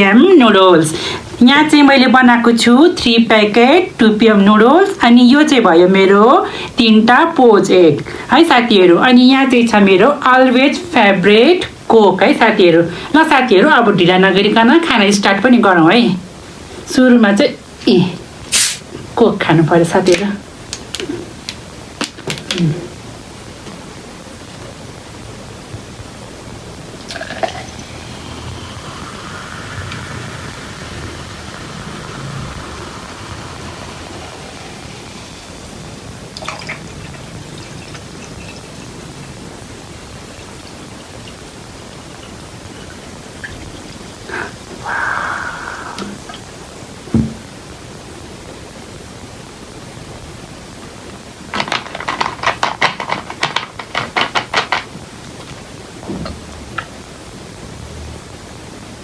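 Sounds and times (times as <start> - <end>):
background hiss: 0.0 - 59.0
soda pouring and fizzing: 17.7 - 19.0, 20.0 - 22.6, 25.1 - 47.8
noodles being slurped: 18.5 - 18.8.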